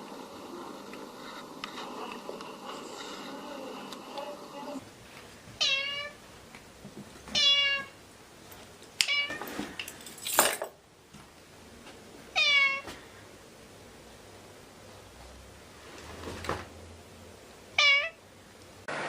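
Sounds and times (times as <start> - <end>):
rough cry: 0.0 - 4.9
cat meowing: 5.6 - 6.2, 7.4 - 8.0, 12.4 - 12.8, 17.8 - 18.2.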